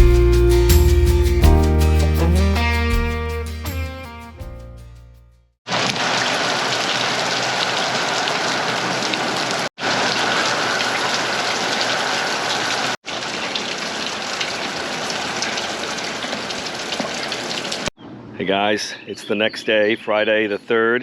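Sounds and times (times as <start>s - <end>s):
heavy rain: 5.7s - 17.9s.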